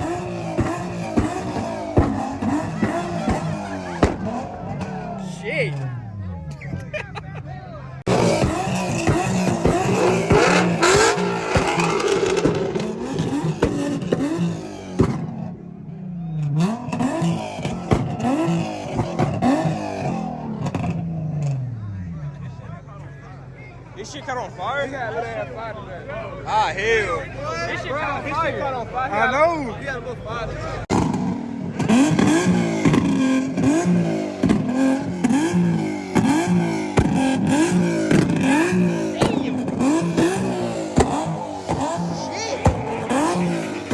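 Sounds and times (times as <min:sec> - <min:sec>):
exhaust pops: 0:00.0 - 0:06.9, 0:08.1 - 0:15.6, 0:16.4 - 0:22.1, 0:30.9 - 0:43.9
car engine revving: 0:00.0 - 0:07.0, 0:07.8 - 0:23.4, 0:28.2 - 0:43.9.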